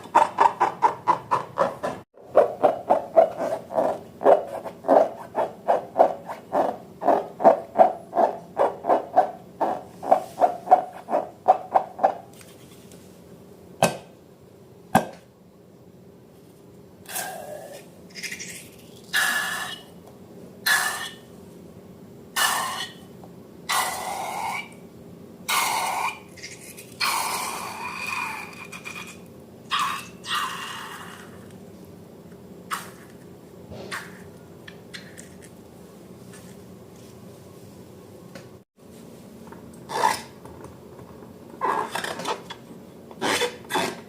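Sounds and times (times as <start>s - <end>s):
squeaky hissing slime bursts: 17.1s - 19.9s, 20.7s - 21.2s, 22.4s - 23.0s.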